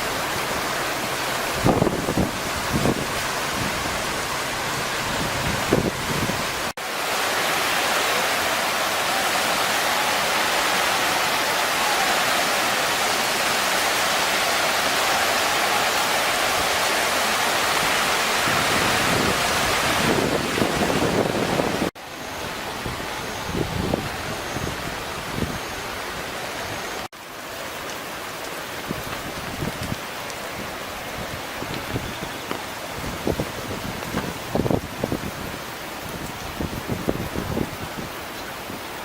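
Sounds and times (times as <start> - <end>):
floodwater rushing: 0.0 - 39.0
wind buffeting microphone: 1.5 - 4.2, 4.9 - 6.7, 18.4 - 21.9, 22.8 - 25.8, 28.9 - 30.0, 30.6 - 38.2.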